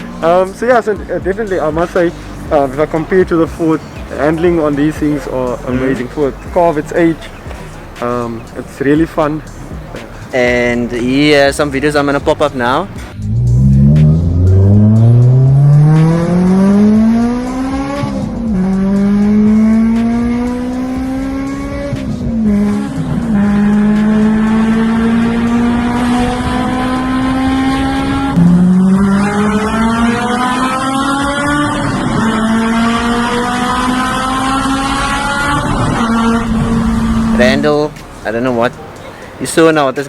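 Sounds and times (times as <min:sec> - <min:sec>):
car engine accelerating through gears: 0:12.8 - 0:39.1.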